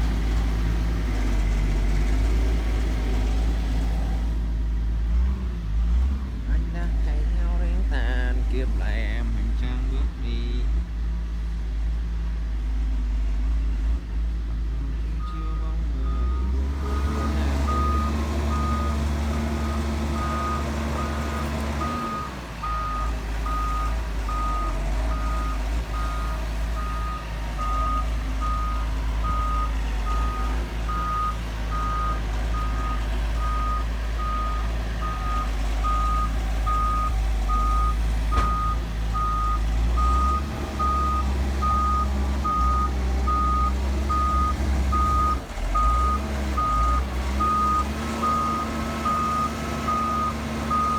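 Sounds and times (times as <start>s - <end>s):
diesel engine running: 0.0s - 50.9s
excavator travel alarm beeping: 15.1s - 50.9s.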